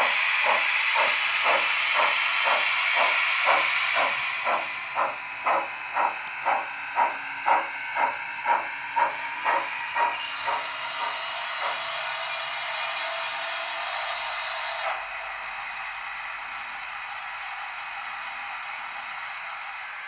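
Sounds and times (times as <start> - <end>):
steady steam hiss: 0.0 - 15.4
steam locomotive exhaust chuffs: 0.0 - 17.5.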